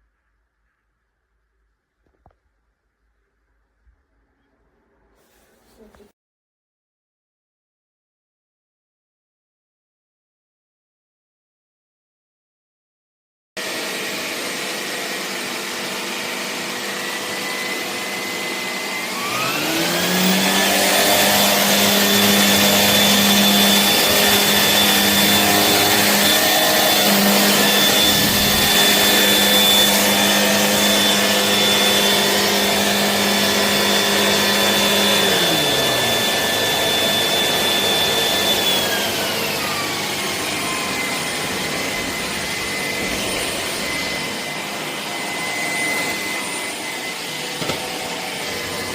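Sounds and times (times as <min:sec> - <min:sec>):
vacuum cleaner motor whine: 0:13.6 - 0:48.9.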